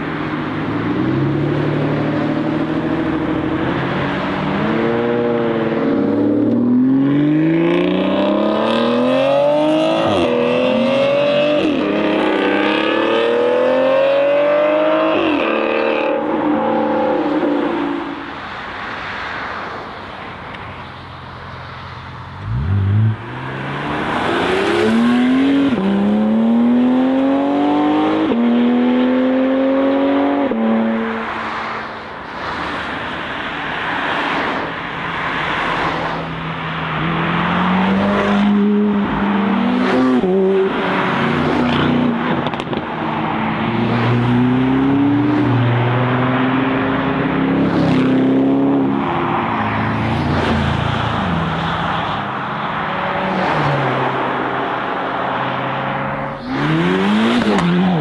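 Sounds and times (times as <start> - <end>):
cars driving by revving: 0.0 - 58.0
sports car engine accelerating: 22.4 - 31.0, 52.6 - 58.0.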